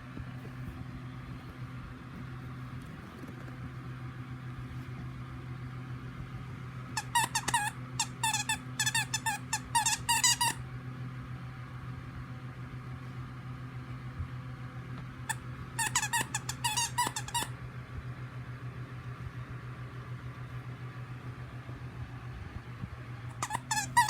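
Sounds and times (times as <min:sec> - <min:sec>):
steady low hum: 0:00.0 - 0:24.0
squeaky dog toy squeaks: 0:07.0 - 0:10.6, 0:15.8 - 0:17.5, 0:23.3 - 0:24.0.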